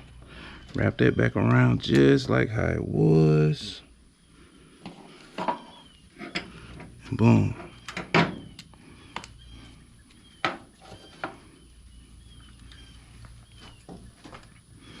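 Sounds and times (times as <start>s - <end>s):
faint bird chirps: 4.1s - 15.0s.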